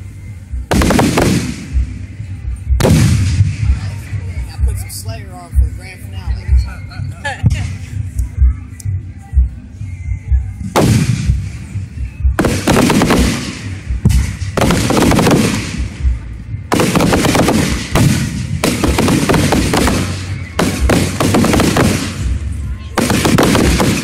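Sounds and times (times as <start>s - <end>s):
fireworks bangs and crackles: 0.7s - 2.1s, 2.8s - 4.8s, 10.8s - 24.0s.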